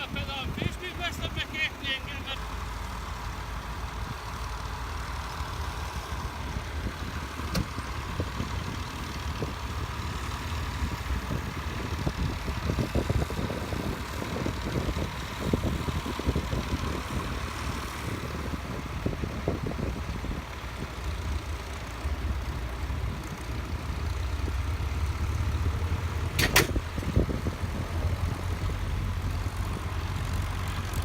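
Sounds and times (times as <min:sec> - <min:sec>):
tractor engine running: 0:00.0 - 0:31.0
sharp click: 0:26.4 - 0:26.8.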